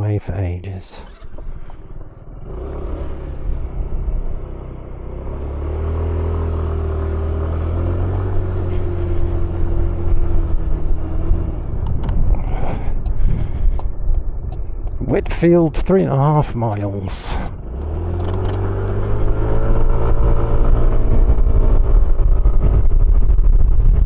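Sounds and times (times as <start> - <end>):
motorcycle engine pulling away: 1.0 - 15.5, 17.3 - 24.0
wind gusts on microphone: 8.5 - 15.8, 17.4 - 24.0.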